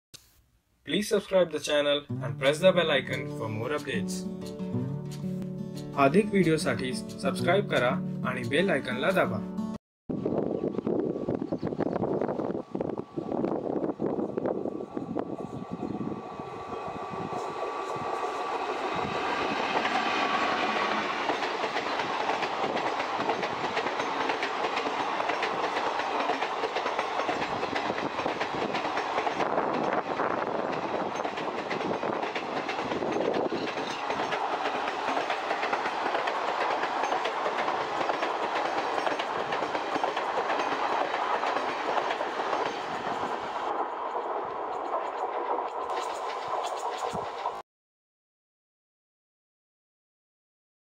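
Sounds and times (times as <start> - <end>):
electric locomotive whine: 10.1 - 47.6
train coaches clattering over rail joints: 19.2 - 47.6.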